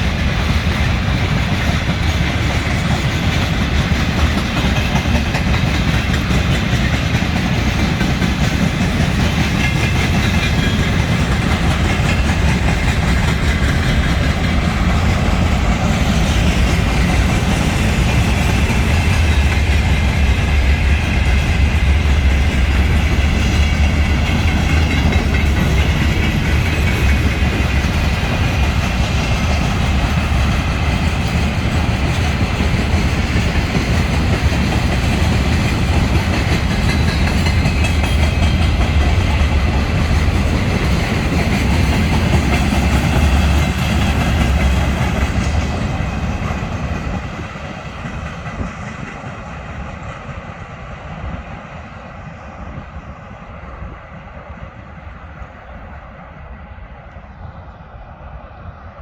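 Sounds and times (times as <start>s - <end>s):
freight train rolling on rails: 0.0s - 59.0s.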